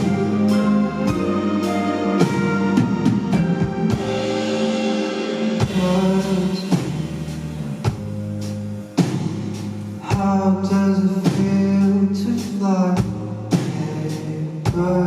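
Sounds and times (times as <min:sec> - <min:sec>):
drum kit hits: 0:00.0 - 0:10.4
bass and guitar notes: 0:00.0 - 0:15.0.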